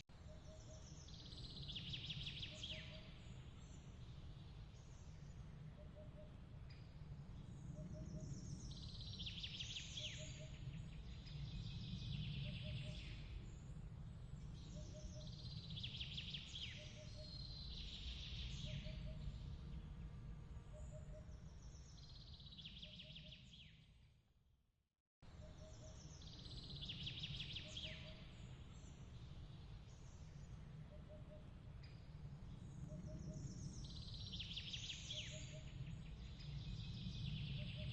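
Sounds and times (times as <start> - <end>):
bird song: 0.0 - 24.2, 25.2 - 37.9
steady low rumbling noise: 25.2 - 37.9.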